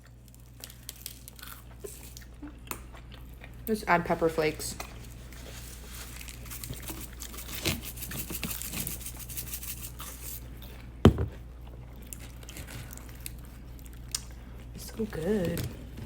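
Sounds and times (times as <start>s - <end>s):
packet tearing and crinkling: 5.4s - 10.1s.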